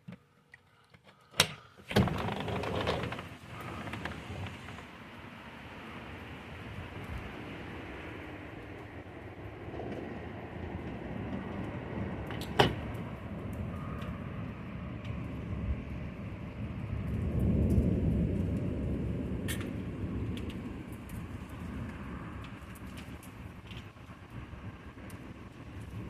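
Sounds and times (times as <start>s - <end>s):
distant thunder rumbling: 6.8s - 26.0s.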